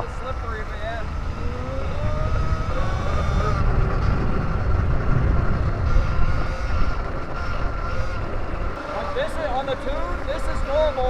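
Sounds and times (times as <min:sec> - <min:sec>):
electric motor whining: 0:00.0 - 0:11.0
wind rumble on microphone: 0:00.0 - 0:11.0.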